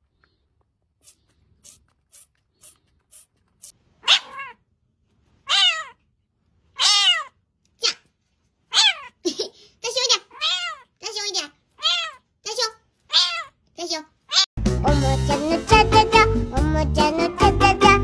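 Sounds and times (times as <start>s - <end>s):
faint breathy puffs: 0.0s - 4.4s
cat meowing loudly: 4.0s - 4.6s, 5.5s - 6.0s, 6.8s - 8.0s, 8.7s - 9.2s, 10.2s - 14.5s.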